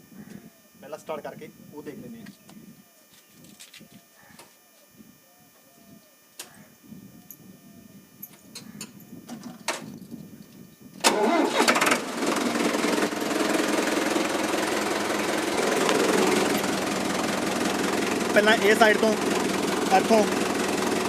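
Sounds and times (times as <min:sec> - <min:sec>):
tractor diesel engine running: 0:11.0 - 0:21.0.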